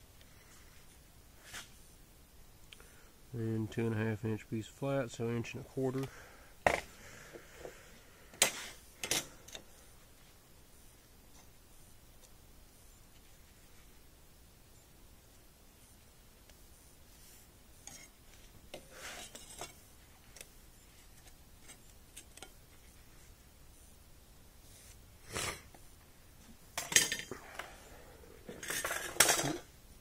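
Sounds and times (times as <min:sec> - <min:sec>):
metal tools clicking and scraping: 0:28.5 - 0:29.7.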